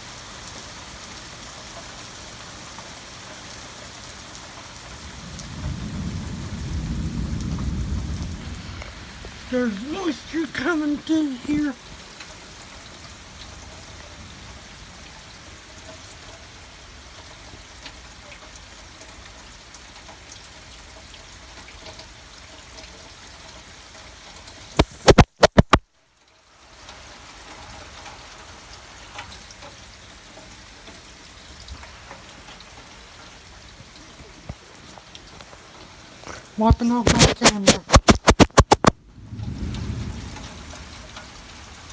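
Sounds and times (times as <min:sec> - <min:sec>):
steady rain falling: 0:00.0 - 0:41.9
loud clicks: 0:24.8 - 0:25.8, 0:37.1 - 0:39.0.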